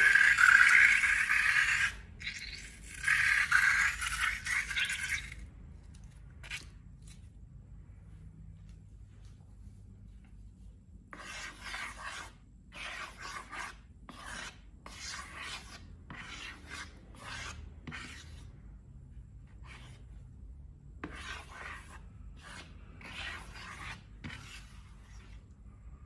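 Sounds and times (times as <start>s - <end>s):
dry scratchy rubbing strokes: 0.0s - 5.2s, 21.1s - 25.5s.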